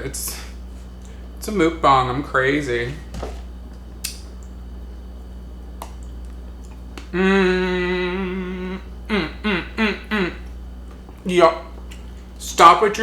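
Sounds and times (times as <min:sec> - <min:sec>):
man humming with mouth full: 0:07.1 - 0:10.6.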